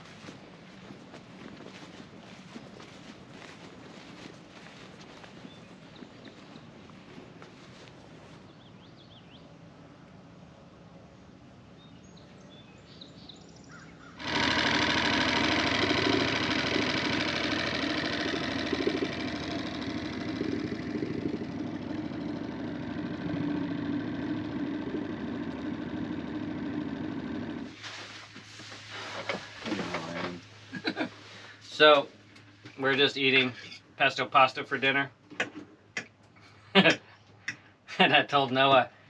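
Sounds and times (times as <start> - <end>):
boat engine running: 14.2 - 27.9, 28.9 - 30.6.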